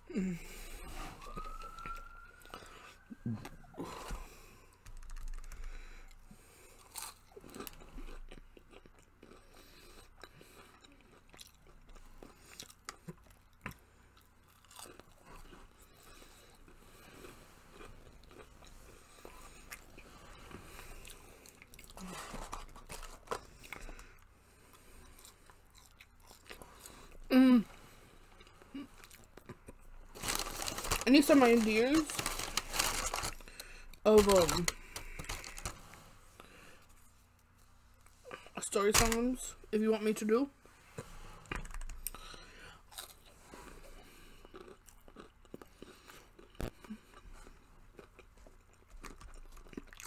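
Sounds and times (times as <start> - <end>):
person chewing crunchy food: 0.2 - 38.6, 41.0 - 50.0.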